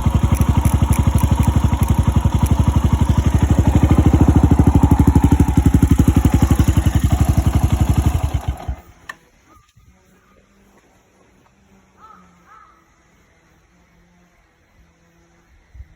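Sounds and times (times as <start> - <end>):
motorcycle engine idling: 0.0 - 9.7.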